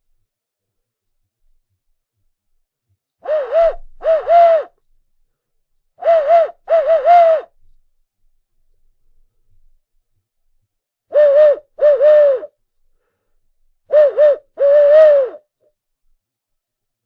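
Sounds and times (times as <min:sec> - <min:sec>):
owl hooting: 0:03.2 - 0:04.7, 0:06.0 - 0:07.5, 0:11.1 - 0:12.5, 0:13.9 - 0:15.4.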